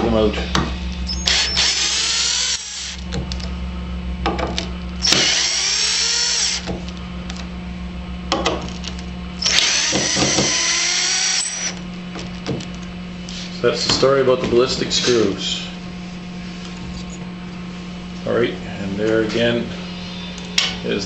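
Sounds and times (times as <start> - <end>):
steady low hum: 0.0 - 21.0
cordless drill whining: 1.1 - 3.0, 5.0 - 6.7, 9.4 - 11.8.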